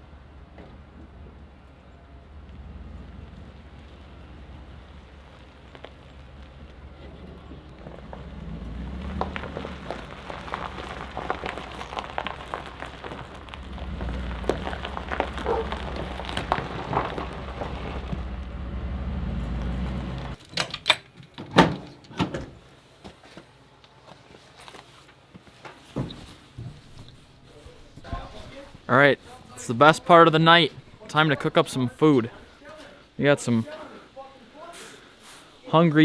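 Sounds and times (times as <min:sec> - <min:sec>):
truck driving on dirt road: 0:00.0 - 0:20.4.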